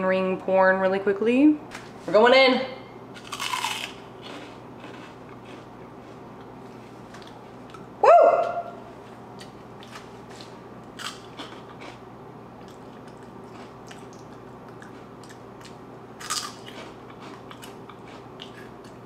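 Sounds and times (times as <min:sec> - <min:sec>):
person crunching snack chips: 0:03.2 - 0:06.2, 0:09.4 - 0:12.0, 0:12.6 - 0:19.0.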